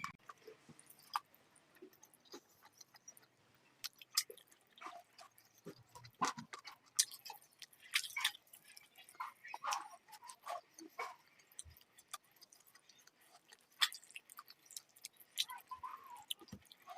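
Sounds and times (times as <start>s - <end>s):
wet chewing and smacking: 0.0s - 16.9s.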